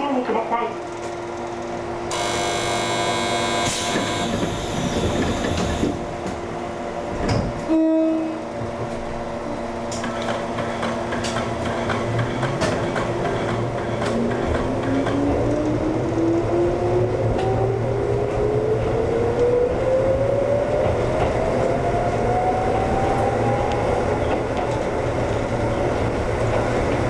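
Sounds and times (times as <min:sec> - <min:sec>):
train rattling and clicks: 0:00.0 - 0:02.2, 0:03.6 - 0:27.0
traction motor whine rising: 0:02.1 - 0:06.0
train horn blast: 0:02.1 - 0:06.0, 0:07.7 - 0:08.5.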